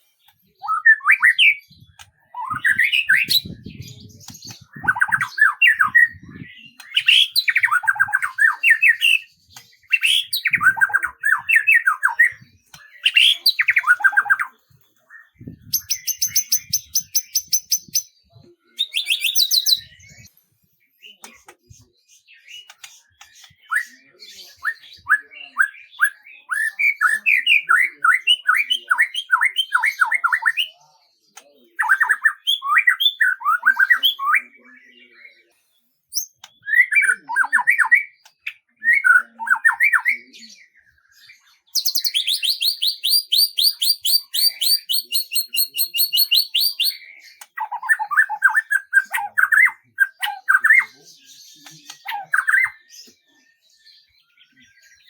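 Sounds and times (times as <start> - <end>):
songbird song: 0.0 - 55.0
high bright bird trill: 15.7 - 18.2.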